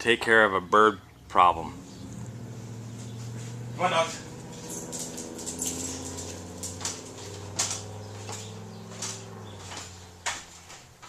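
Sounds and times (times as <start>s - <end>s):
low mechanical hum: 1.0s - 11.0s
sharp clicks and knocks: 4.7s - 11.0s.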